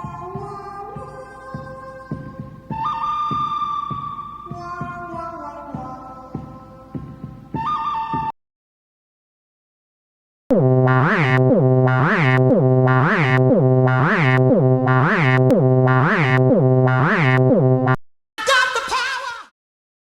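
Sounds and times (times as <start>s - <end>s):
synthesizer note with filter sweeps: 10.5s - 18.0s.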